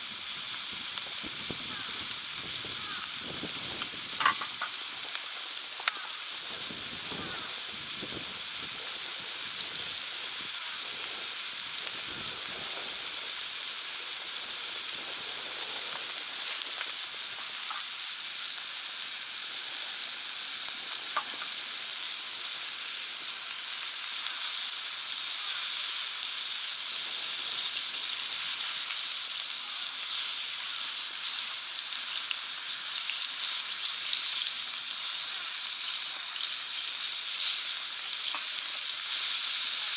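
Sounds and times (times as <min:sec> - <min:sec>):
meat sizzling on a grill pan: 0:00.0 - 0:39.9
faint ticks: 0:05.8 - 0:06.2.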